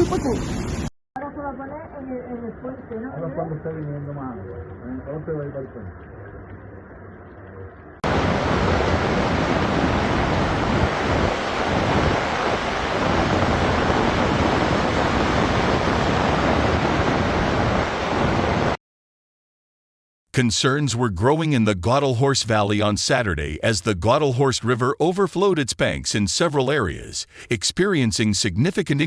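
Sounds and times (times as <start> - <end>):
rushing floodwater roar: 8.0 - 18.8.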